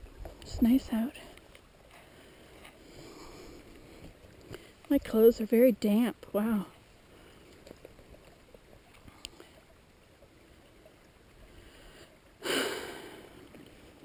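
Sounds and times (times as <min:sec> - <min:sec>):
faint ticks: 0:00.2 - 0:05.0, 0:07.2 - 0:09.8.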